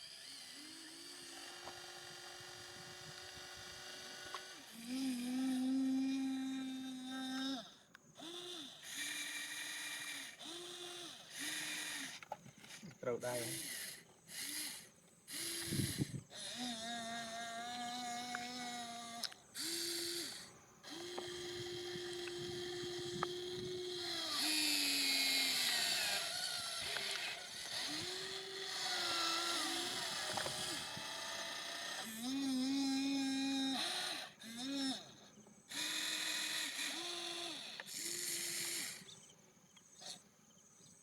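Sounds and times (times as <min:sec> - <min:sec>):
small electric motors whining: 0:00.0 - 0:39.3.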